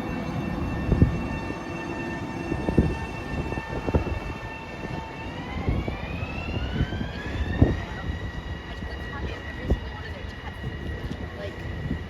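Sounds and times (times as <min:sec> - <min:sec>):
electric train motors whining: 0:00.0 - 0:12.0.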